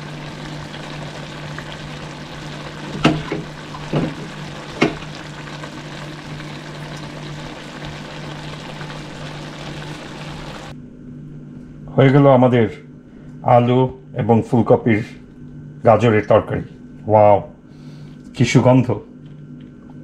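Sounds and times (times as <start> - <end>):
curry sizzling in a pan: 0.0 - 10.7
steady low hum: 0.0 - 20.0.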